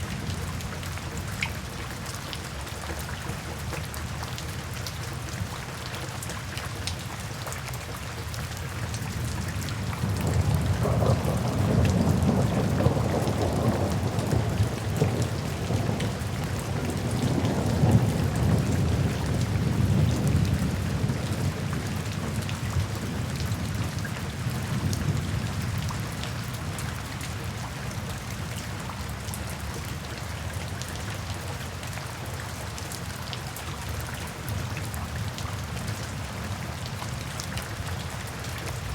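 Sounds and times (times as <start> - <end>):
steady rain falling: 0.0 - 38.9
thunder rolling: 10.3 - 16.0.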